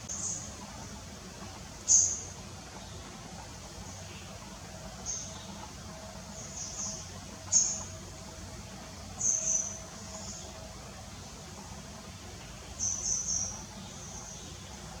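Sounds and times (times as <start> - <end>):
low steady background noise: 0.0 - 15.0
small bird chirping: 0.1 - 0.5, 1.8 - 2.3, 5.0 - 5.6, 6.3 - 7.9, 9.2 - 10.6, 12.7 - 14.9.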